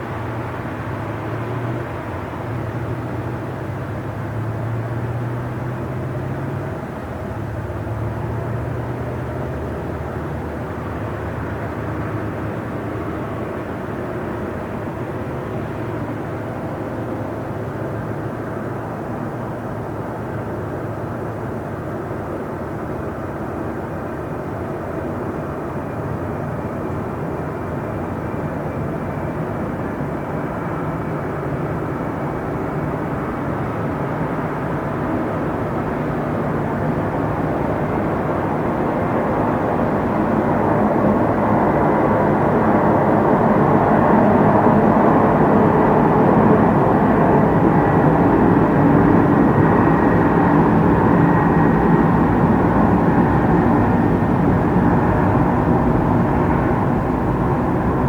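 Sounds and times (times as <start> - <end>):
train rumbling: 27.8 - 58.0.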